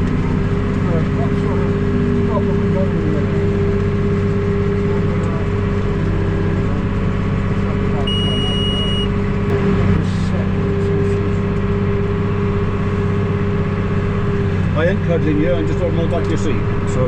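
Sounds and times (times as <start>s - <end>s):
high electronic beep: 8.1s - 9.1s.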